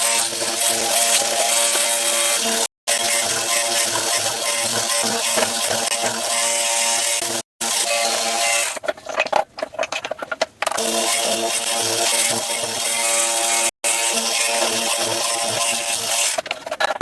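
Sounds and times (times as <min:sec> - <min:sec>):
power tool cutting wood: 0:00.0 - 0:08.8, 0:10.8 - 0:16.4.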